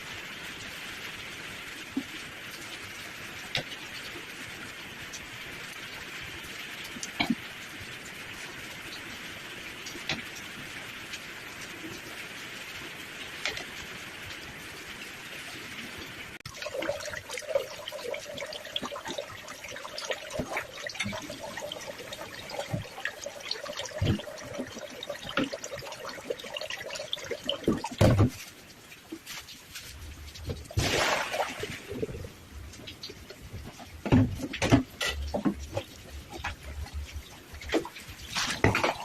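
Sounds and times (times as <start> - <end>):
steady rain falling: 0.0 - 39.0
splashing water: 15.7 - 39.0.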